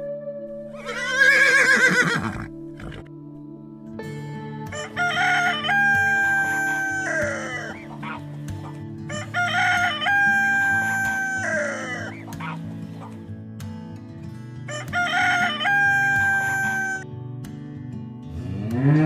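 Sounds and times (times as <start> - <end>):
rooster crowing: 4.7 - 7.8, 9.1 - 12.2, 14.7 - 17.0.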